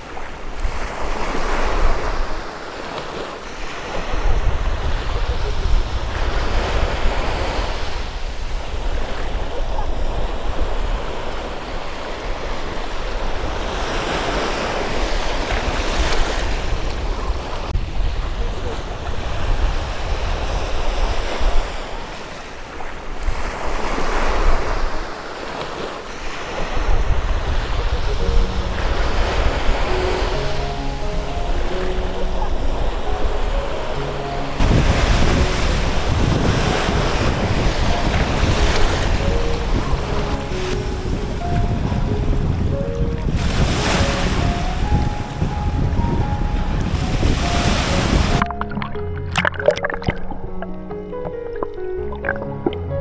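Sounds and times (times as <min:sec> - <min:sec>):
wind buffeting microphone: 0:00.0 - 0:25.2, 0:26.1 - 0:53.0
sea waves washing: 0:00.0 - 0:53.0
faint musical notes: 0:27.8 - 0:36.2, 0:44.1 - 0:53.0.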